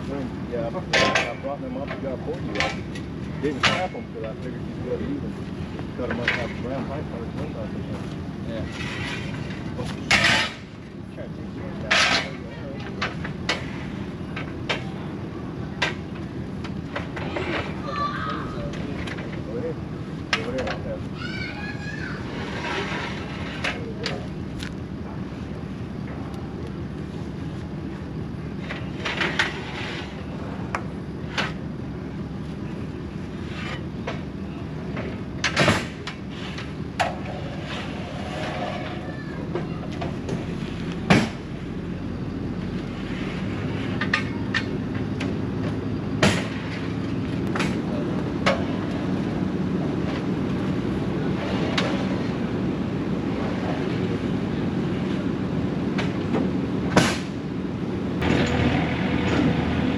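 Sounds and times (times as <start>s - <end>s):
engine droning: 0.0s - 59.9s
sharp clanks and knocks: 0.8s - 4.0s, 8.7s - 10.8s, 11.8s - 14.9s, 34.9s - 41.5s, 43.8s - 49.0s, 58.2s - 59.8s.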